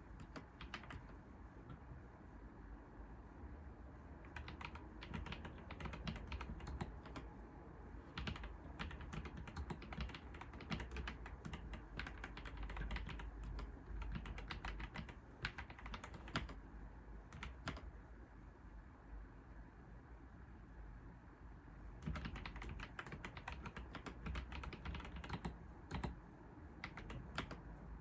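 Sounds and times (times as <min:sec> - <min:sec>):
keyboard typing: 0:00.0 - 0:01.8, 0:04.2 - 0:07.3, 0:08.0 - 0:16.6, 0:17.3 - 0:18.0, 0:22.0 - 0:26.2, 0:26.8 - 0:27.7.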